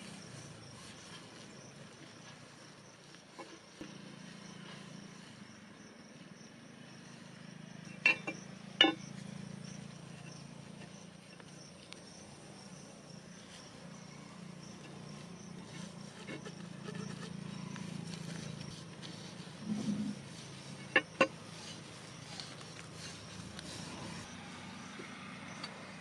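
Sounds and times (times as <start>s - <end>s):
faint insects chirring: 0.0s - 26.0s.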